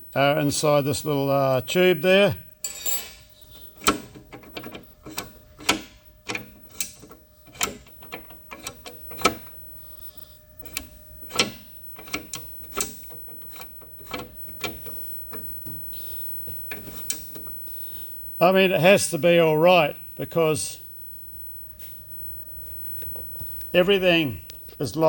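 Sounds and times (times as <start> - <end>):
metallic clicks and clunks: 3.8 - 9.5, 10.6 - 15.4.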